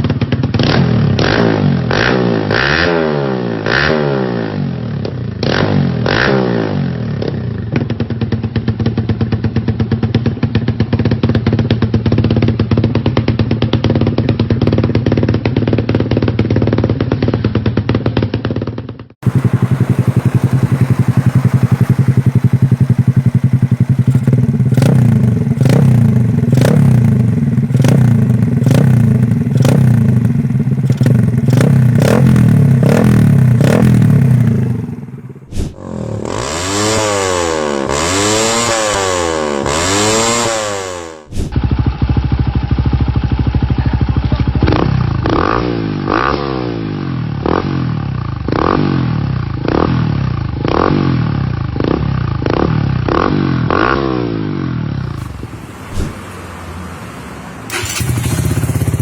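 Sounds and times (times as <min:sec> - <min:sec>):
motorcycle engine revving: 0:00.1 - 0:59.0
motorcycle engine idling with blips: 0:19.2 - 0:35.5, 0:41.6 - 0:45.6, 0:57.7 - 0:59.0.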